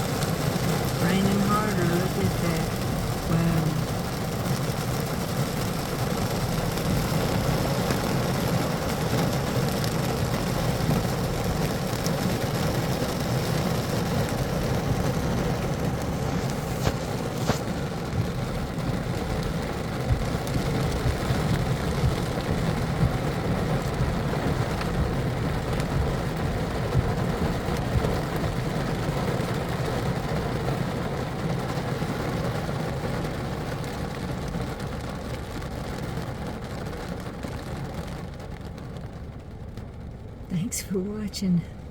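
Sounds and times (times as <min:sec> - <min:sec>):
heavy rain on car roof: 0:00.0 - 0:41.9.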